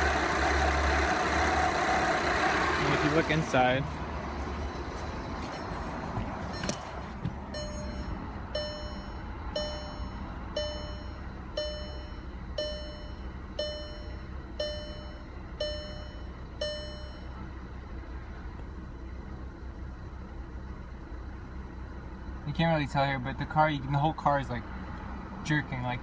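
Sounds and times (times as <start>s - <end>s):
diesel engine idling rough: 0.0s - 26.0s
car warning chime: 2.8s - 17.8s.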